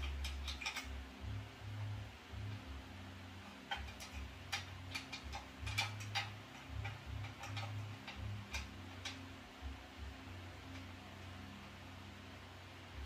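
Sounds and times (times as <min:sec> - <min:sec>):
parts and hardware clicking: 0:00.0 - 0:01.4, 0:03.4 - 0:09.3
faint low hum: 0:00.0 - 0:13.0.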